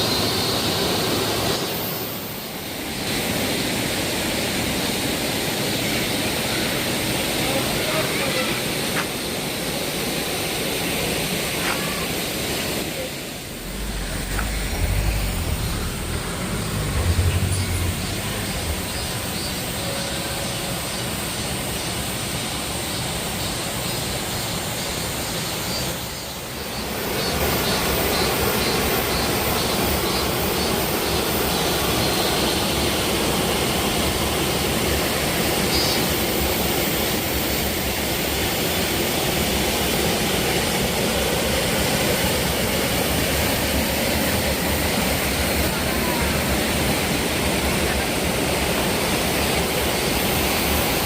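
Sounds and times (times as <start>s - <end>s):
waterfall rushing: 0.0s - 25.2s.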